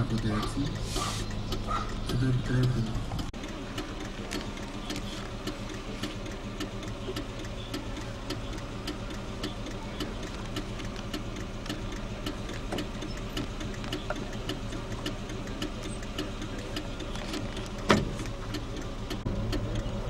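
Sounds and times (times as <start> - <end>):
car engine running slowly: 0.0 - 20.0
even ticking: 0.0 - 20.0.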